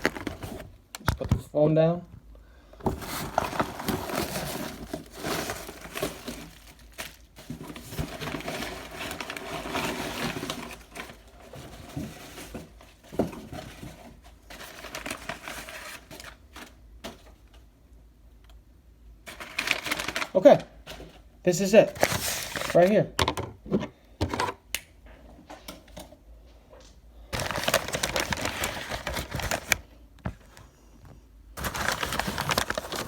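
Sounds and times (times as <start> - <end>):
packaging crinkling and rustling: 0.0 - 1.5, 2.8 - 17.7, 19.3 - 23.2, 27.3 - 30.7, 31.6 - 33.0.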